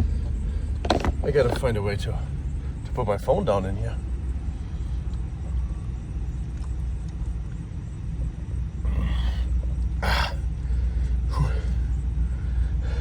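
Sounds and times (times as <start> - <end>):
low rumble inside van: 0.0 - 13.0.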